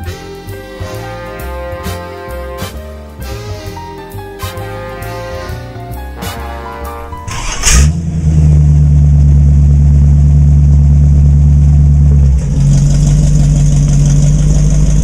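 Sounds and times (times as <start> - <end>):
car engine droning: 6.7 - 15.0.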